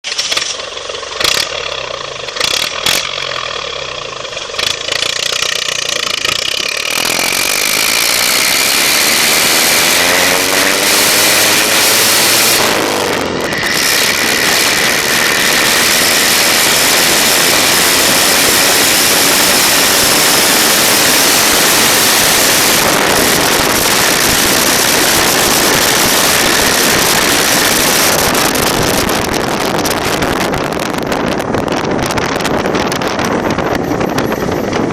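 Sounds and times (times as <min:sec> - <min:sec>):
diesel truck engine: 0:00.0 - 0:34.9
engine knocks: 0:00.2 - 0:07.9
wind noise: 0:04.6 - 0:34.9.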